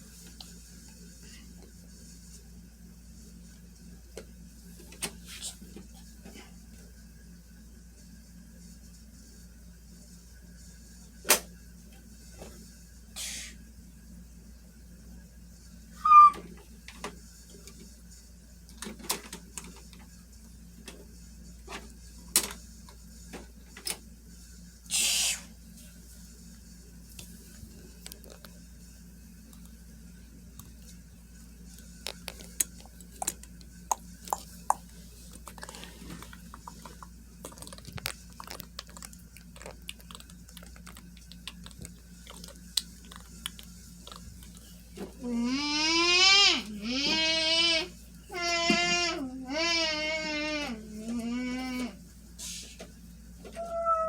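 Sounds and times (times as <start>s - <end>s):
short burst of hiss: 24.9s - 25.5s.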